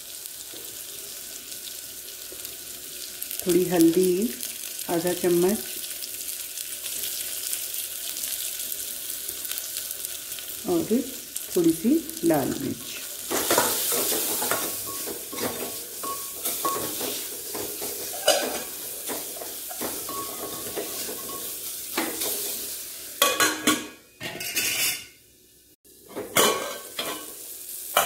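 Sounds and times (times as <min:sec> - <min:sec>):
vegetables sizzling in a pot: 0:00.0 - 0:28.0
ladle stirring and scraping: 0:13.3 - 0:21.3
metal lid clattering: 0:18.1 - 0:18.7, 0:26.1 - 0:27.3.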